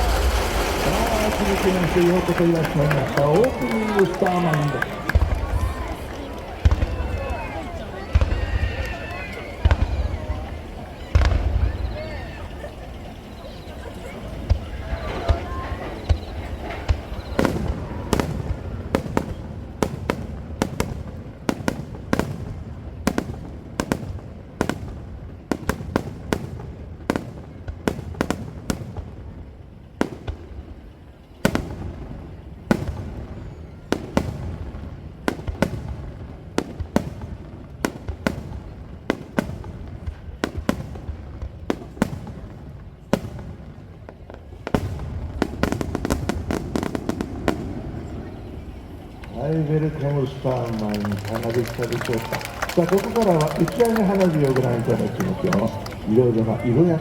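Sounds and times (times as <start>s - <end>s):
fireworks bursting with sharp bangs: 0.0s - 57.0s.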